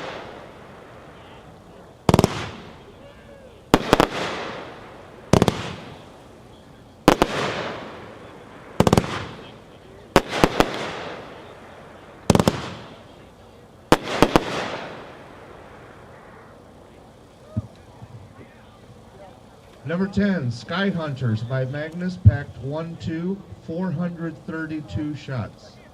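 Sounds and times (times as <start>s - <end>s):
firework cake shots with hissing tails: 0.0s - 3.0s, 3.6s - 18.4s.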